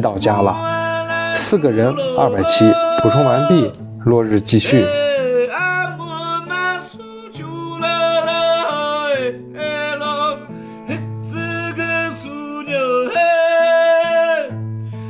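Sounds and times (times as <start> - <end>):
acoustic guitar: 0.0 - 15.0.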